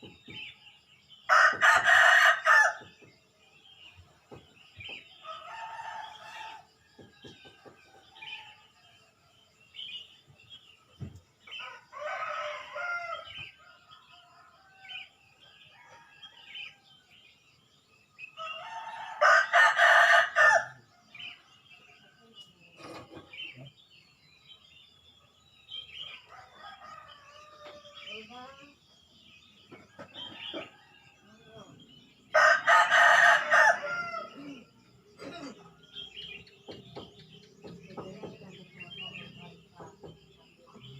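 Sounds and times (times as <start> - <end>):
small birds chirping: 0.0 - 40.9
roosters crowing: 1.3 - 3.0, 5.0 - 8.7, 11.5 - 17.0, 18.4 - 21.4, 26.0 - 28.5, 29.7 - 38.8.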